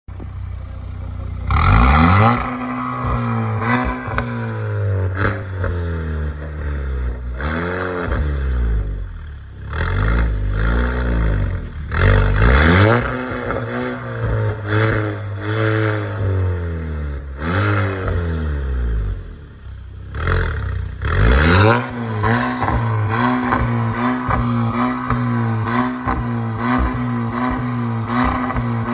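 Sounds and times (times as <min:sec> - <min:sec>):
car engine revving and idling: 0:00.1 - 0:28.9.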